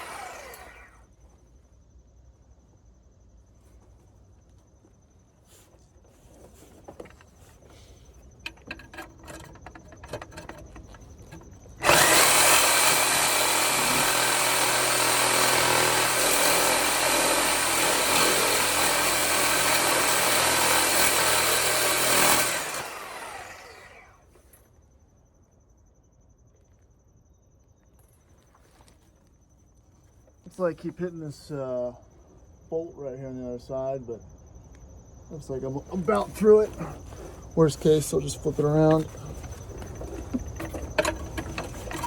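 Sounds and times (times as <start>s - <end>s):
reciprocating saw cutting metal: 0.0s - 1.0s, 11.8s - 24.1s.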